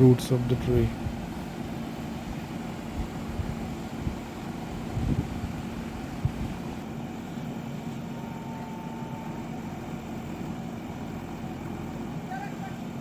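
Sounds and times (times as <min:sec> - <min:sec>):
excavator diesel engine humming: 0:00.0 - 0:13.0.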